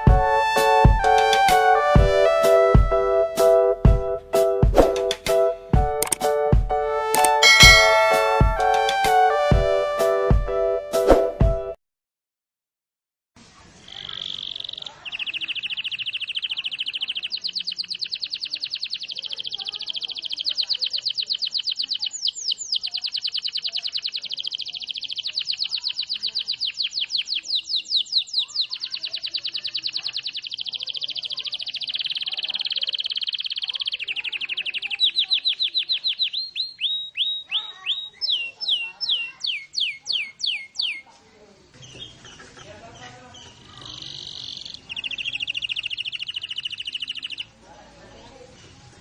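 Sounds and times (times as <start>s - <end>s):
canary singing trills: 7.4s - 8.9s, 13.9s - 41.1s, 41.8s - 47.6s.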